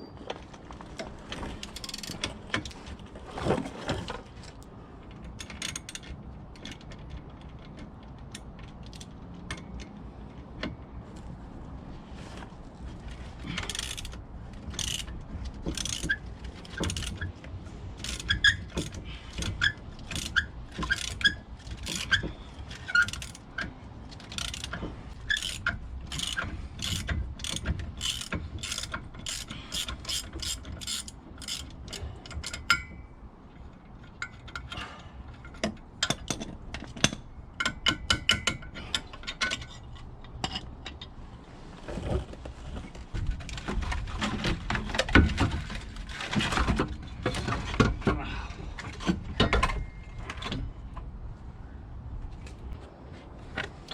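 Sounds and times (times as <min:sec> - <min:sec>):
ratchet wrench clicking: 0:13.6 - 0:17.2, 0:18.0 - 0:22.2, 0:24.3 - 0:32.9.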